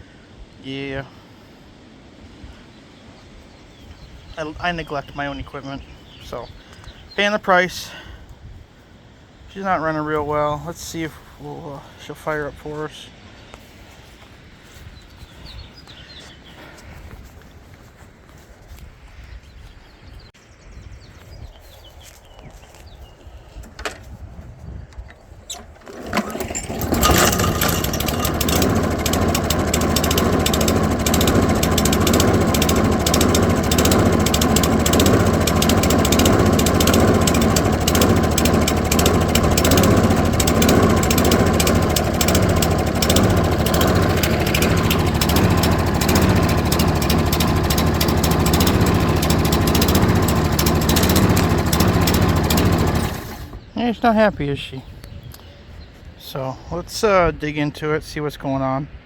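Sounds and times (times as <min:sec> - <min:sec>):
lawn mower engine running: 0:25.5 - 0:53.7.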